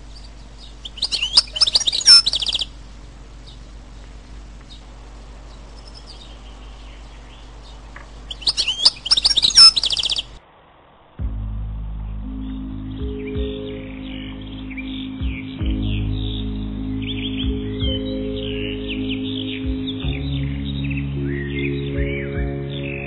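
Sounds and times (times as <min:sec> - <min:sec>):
faint bird chirps: 0:00.0 - 0:10.4
songbird singing: 0:00.0 - 0:10.4, 0:12.0 - 0:23.0.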